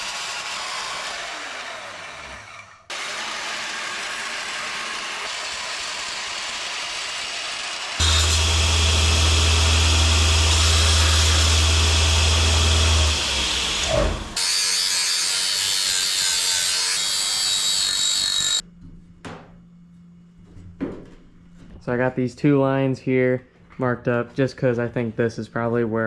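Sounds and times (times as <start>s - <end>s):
power tool cutting sheet metal: 0.0s - 18.6s.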